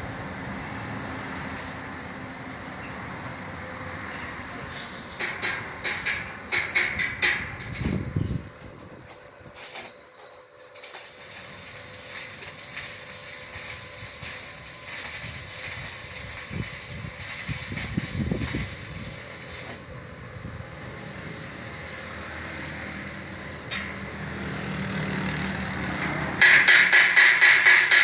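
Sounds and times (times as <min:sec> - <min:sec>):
welder arc crackling: 0:10.6 - 0:19.9, 0:26.4 - 0:28.0.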